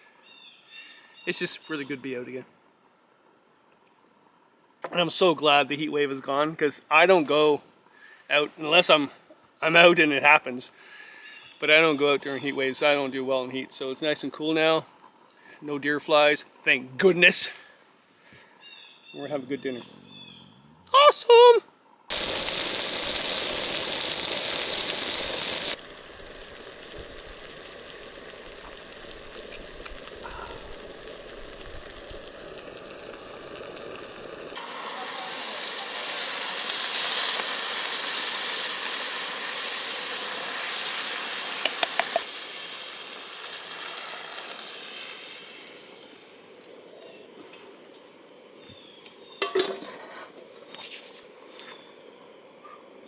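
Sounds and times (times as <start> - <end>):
ham sizzling in a pan: 22.1 - 47.0.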